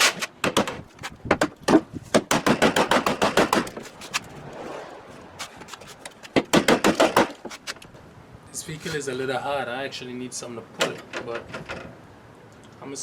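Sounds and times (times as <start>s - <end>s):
hammer pounding on metal bodywork: 1.4s - 3.7s, 6.4s - 7.4s.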